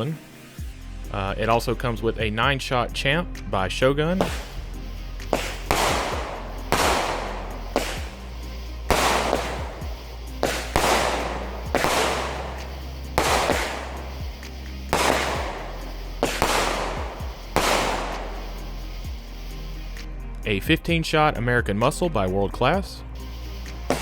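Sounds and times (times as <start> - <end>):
firework bangs: 3.8 - 20.2, 23.1 - 24.0.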